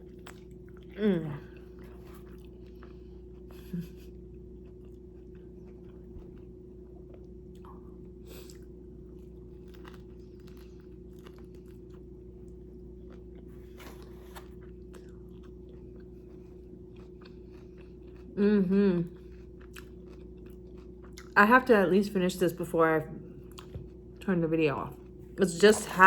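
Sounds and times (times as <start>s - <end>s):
low hum: 0.0s - 20.6s
person chewing food: 0.0s - 21.4s, 23.4s - 24.2s.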